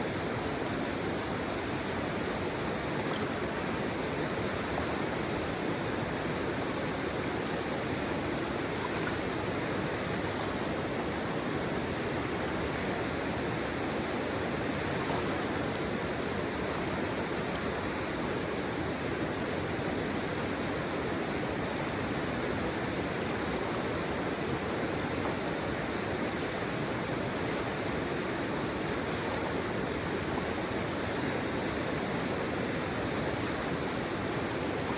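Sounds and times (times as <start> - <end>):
continuous noise hiss: 0.0 - 34.9
river water flowing: 0.0 - 34.9.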